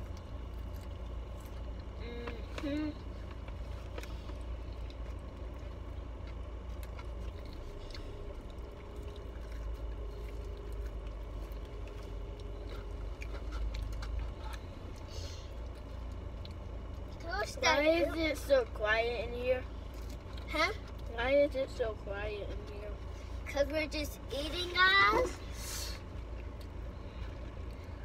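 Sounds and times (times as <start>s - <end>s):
faint chewing: 0.0s - 18.8s, 19.6s - 28.0s
low car cabin rumble: 0.0s - 28.0s.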